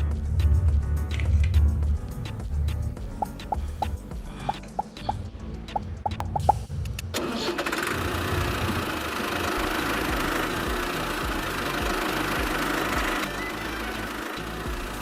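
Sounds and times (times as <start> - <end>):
motor running with low throb: 7.9 - 15.0.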